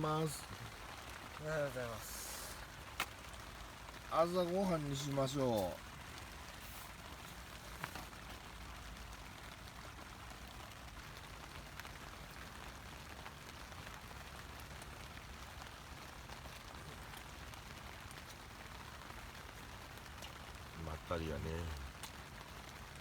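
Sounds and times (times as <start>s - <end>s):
faint rain falling: 0.0s - 23.0s
faint ticks: 21.8s - 22.3s.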